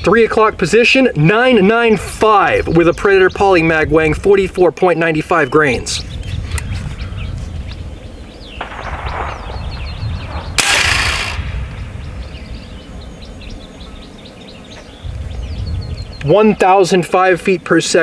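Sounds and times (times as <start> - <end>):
birds chirping faintly: 0.0 - 18.0
air rifle shot: 8.6 - 12.5.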